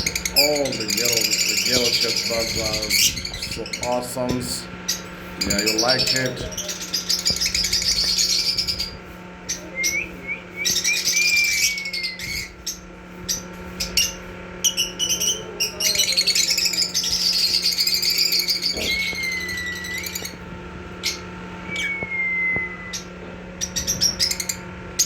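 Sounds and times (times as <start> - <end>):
lovebird chattering and whistling: 4.9 - 20.4
low hum: 16.7 - 25.0.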